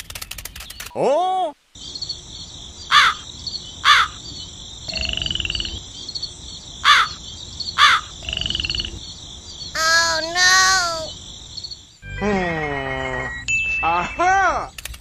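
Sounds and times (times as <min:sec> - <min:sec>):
insect chirring: 0:01.8 - 0:12.1
short falling bird calls: 0:02.9 - 0:04.3, 0:06.8 - 0:07.2, 0:07.8 - 0:08.1
rattling croaks: 0:02.9 - 0:11.7.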